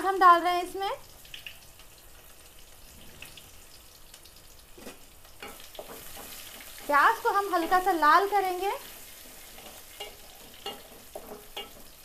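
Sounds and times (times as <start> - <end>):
onion sizzling in pot: 0.0 - 12.0
small pops and crackles: 1.2 - 1.9.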